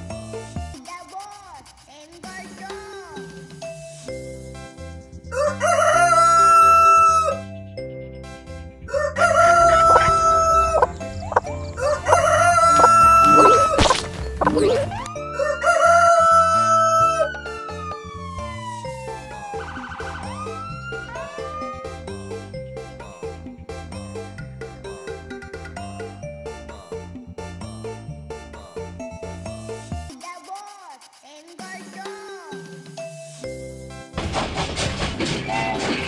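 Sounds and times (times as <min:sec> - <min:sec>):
rooster crowing: 0:05.3 - 0:07.4, 0:08.9 - 0:13.8, 0:15.3 - 0:17.4.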